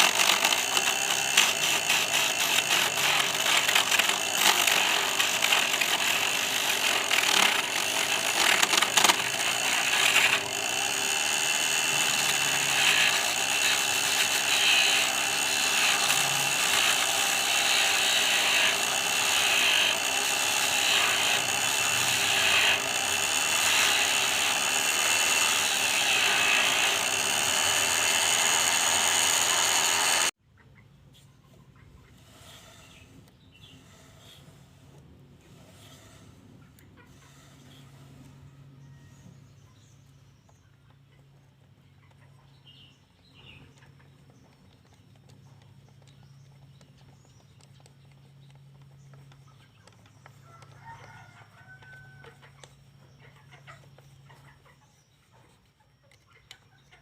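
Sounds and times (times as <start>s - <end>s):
lathe motor rattling: 0.0s - 30.4s.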